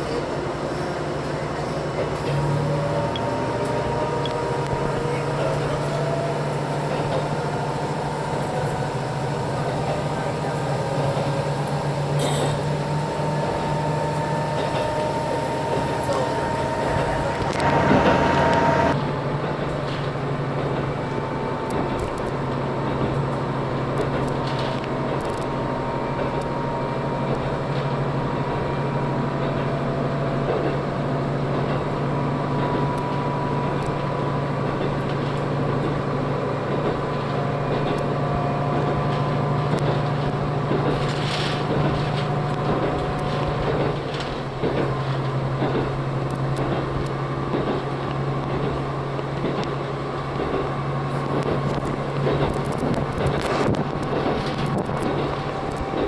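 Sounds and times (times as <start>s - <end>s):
low engine hum: 0.0s - 56.0s
wheels running on rail: 0.0s - 56.0s.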